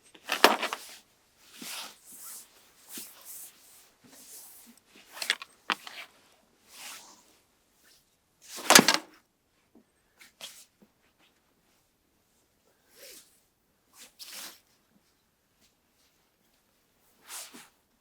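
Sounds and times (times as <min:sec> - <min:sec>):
handling clicks and knocks: 0:00.2 - 0:00.8, 0:05.2 - 0:06.0, 0:08.7 - 0:09.1
rustling burst: 0:08.7 - 0:09.1.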